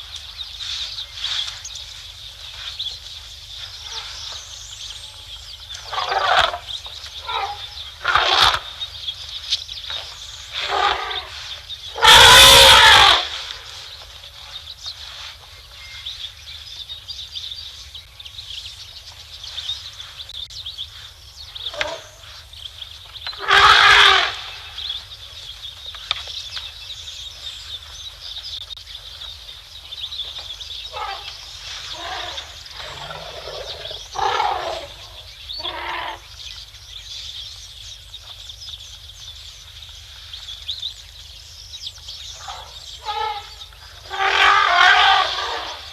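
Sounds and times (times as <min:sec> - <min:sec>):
elephants trumpeting: 0:05.8 - 0:06.6, 0:07.2 - 0:08.7, 0:10.6 - 0:11.3, 0:11.9 - 0:13.4, 0:23.4 - 0:24.5, 0:31.9 - 0:36.2, 0:42.4 - 0:45.9
shorter quieter elephant calls: 0:11.9 - 0:13.4, 0:31.9 - 0:36.2, 0:42.4 - 0:45.9.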